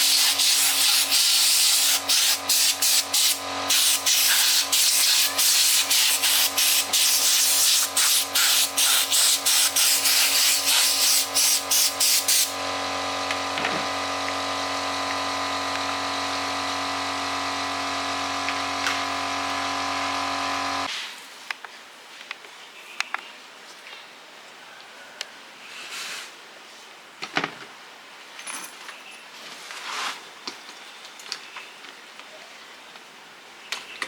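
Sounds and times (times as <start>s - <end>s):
electric power tool motor: 0.0s - 20.9s.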